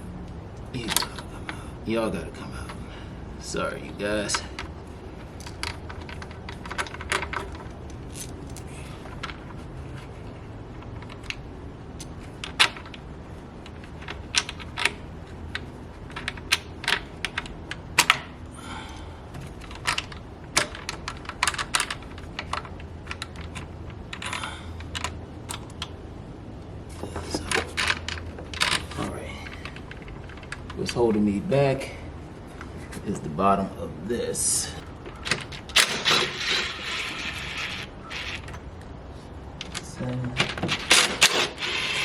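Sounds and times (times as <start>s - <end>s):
short scraping rattles: 34.7s - 38.7s.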